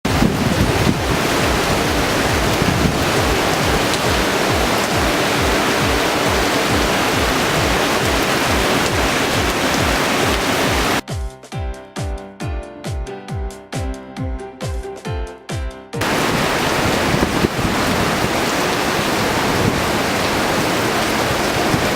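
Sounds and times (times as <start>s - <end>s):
wind and heavy rain rushing: 0.0s - 11.0s, 16.0s - 21.9s
music with low beat: 2.4s - 10.0s, 11.0s - 16.0s.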